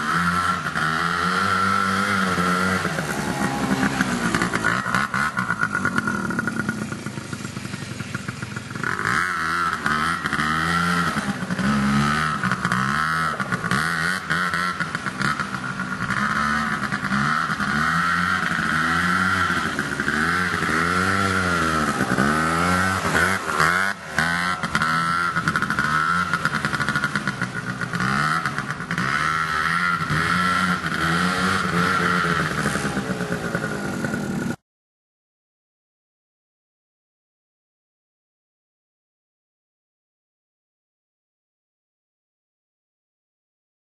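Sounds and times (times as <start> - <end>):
quad bike engine revving: 0.0 - 34.6.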